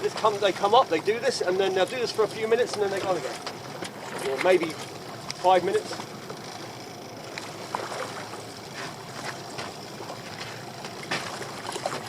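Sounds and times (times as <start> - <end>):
water sloshing against boat hull: 0.0 - 12.0
sharp splashes and knocks: 7.3 - 12.0.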